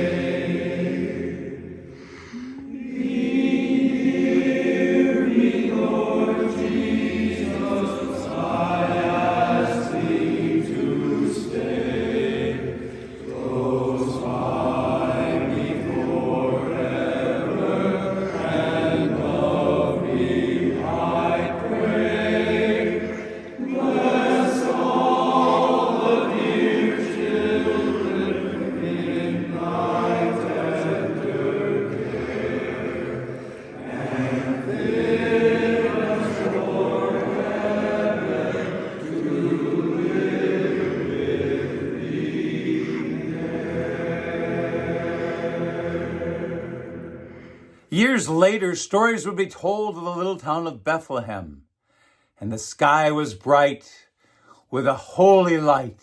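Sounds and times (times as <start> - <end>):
chorus singing a cappella: 0.0 - 48.4
singers breathing: 1.6 - 2.8, 12.7 - 13.3, 22.8 - 23.7, 33.3 - 33.8, 47.1 - 47.9, 51.8 - 52.4, 54.0 - 54.8.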